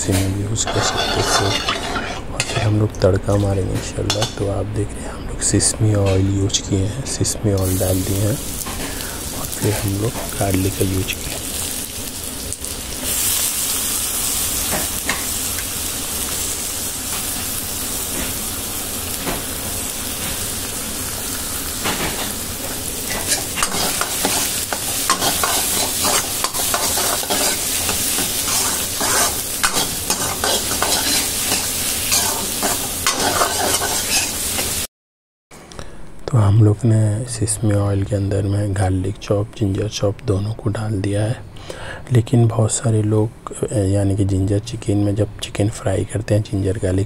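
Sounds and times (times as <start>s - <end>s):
garlic sizzling in hot oil: 0.6s - 2.7s, 7.6s - 34.9s
steel ladle scraping a wok: 0.6s - 2.8s, 22.0s - 34.8s.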